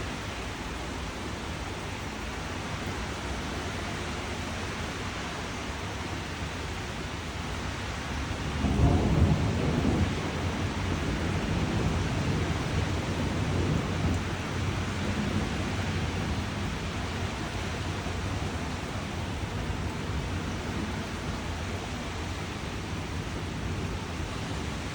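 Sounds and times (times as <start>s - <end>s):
steady rain falling: 0.0s - 24.9s
thunder rolling: 8.4s - 24.9s.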